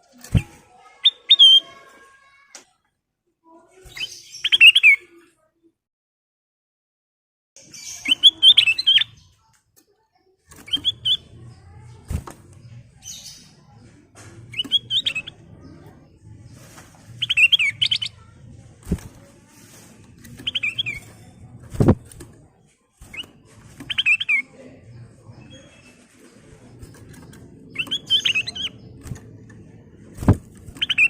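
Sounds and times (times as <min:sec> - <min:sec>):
bird singing whistled phrases: 0:01.0 - 0:01.7.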